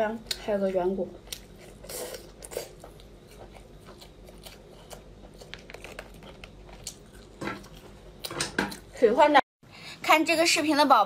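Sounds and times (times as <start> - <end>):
chewing crab meat: 1.1 - 8.9.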